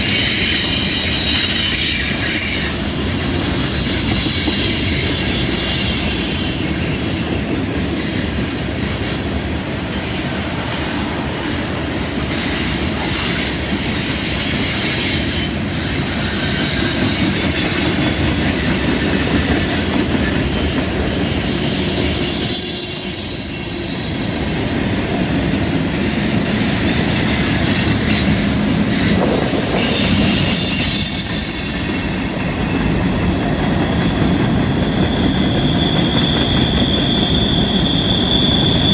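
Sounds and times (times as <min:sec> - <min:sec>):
train wheels squealing on rails: 0:00.0 - 0:38.9
freight cars rumbling and clattering: 0:25.1 - 0:37.0.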